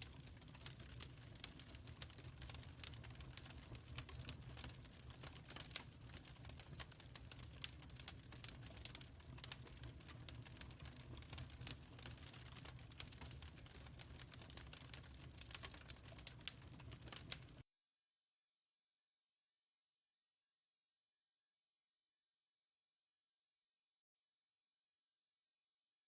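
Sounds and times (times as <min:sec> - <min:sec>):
wood fire crackling: 0:00.0 - 0:17.6.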